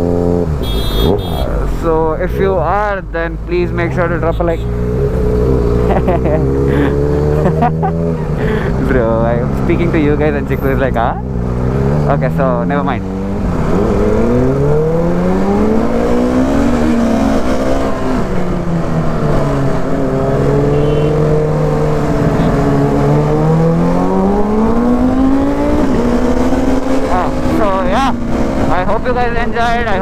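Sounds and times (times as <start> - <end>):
motorcycle engine running: 0.0 - 1.6.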